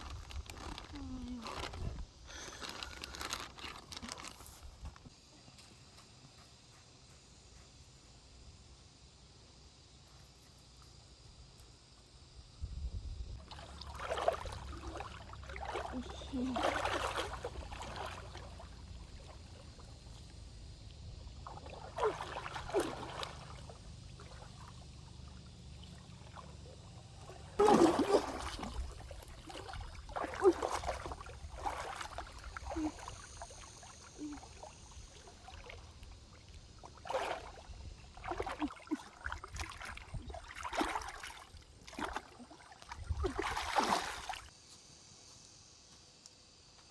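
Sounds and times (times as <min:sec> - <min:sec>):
stream water splashing by hand: 0:13.3 - 0:44.5.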